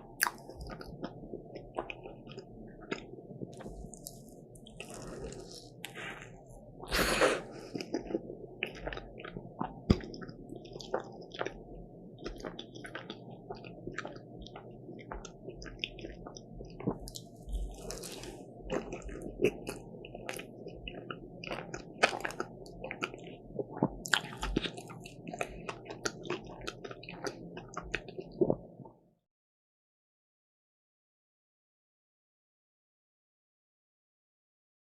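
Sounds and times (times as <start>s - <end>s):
crunchy chewing: 0.0s - 28.6s
crisp bite: 0.1s - 1.1s, 1.8s - 9.3s, 17.0s - 20.5s, 24.1s - 27.0s.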